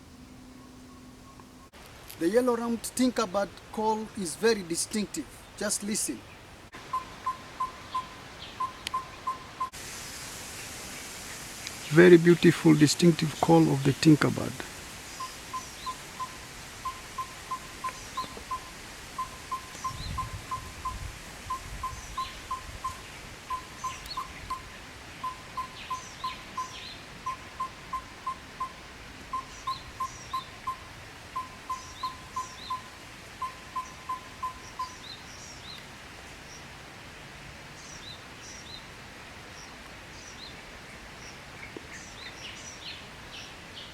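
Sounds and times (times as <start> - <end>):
tinkerbird repeated calling notes: 3.2 - 9.8, 15.1 - 35.2
faint high bird chirps: 6.9 - 9.8, 15.2 - 30.8, 31.4 - 35.8.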